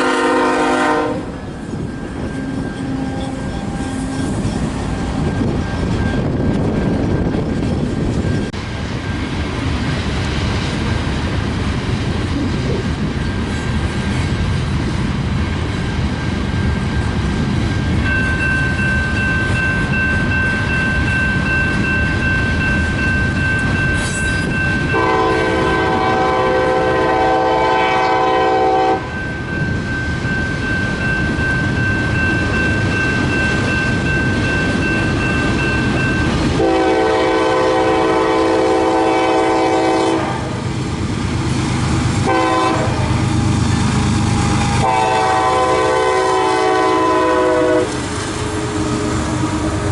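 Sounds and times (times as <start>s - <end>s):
locomotive air horn chord: 0.0s - 1.4s, 24.9s - 29.1s, 36.6s - 40.6s, 42.2s - 43.1s, 44.8s - 48.0s
passing train rumble: 0.0s - 49.9s
high-pitched squeal: 1.4s - 9.4s.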